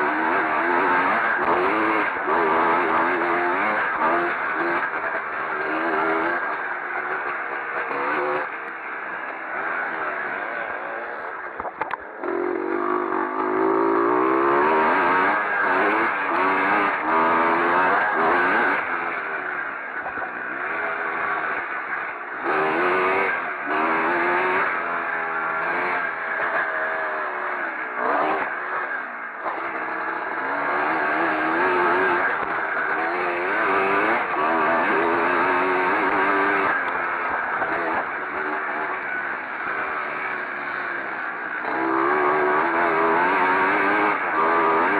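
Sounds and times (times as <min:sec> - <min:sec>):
motorcycle engines revving: 0:00.0 - 0:44.9.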